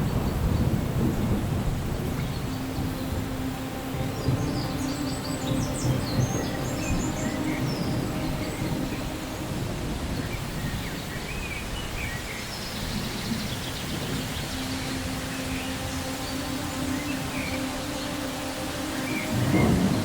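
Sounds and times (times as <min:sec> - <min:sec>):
thunder rumbling: 0:00.0 - 0:16.6, 0:19.3 - 0:20.0
steady rain: 0:00.0 - 0:20.0.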